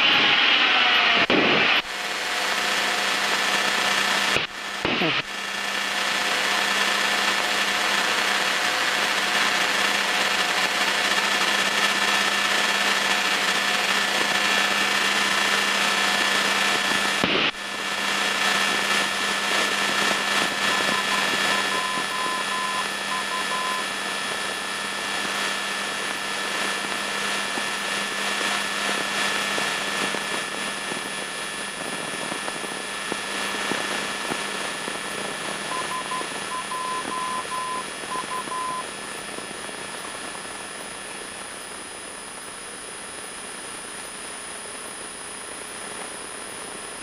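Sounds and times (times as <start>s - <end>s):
airplane engine and propeller droning: 0.0s - 47.0s
high morse-like beeps: 20.6s - 23.9s, 35.7s - 38.9s.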